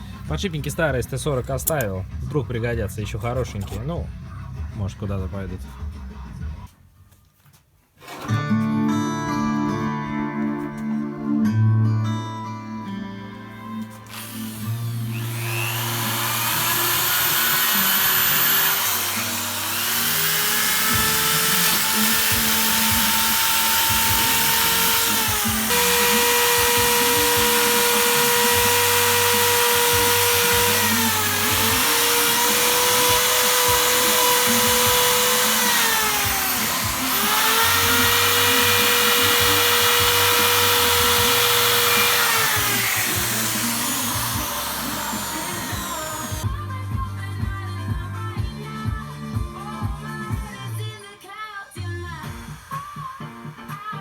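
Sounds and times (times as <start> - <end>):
power tool whining: 14.0 - 46.4.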